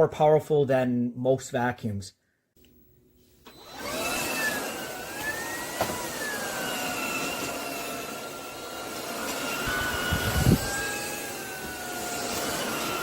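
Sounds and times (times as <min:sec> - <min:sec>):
vacuum cleaner motor whine: 0:03.4 - 0:13.0.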